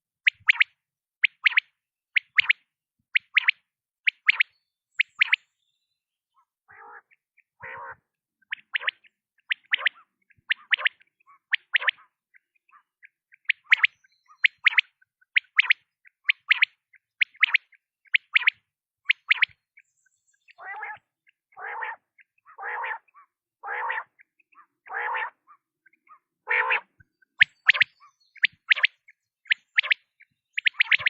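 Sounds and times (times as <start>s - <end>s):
quail calling: 6.4s - 16.6s, 20.5s - 31.0s.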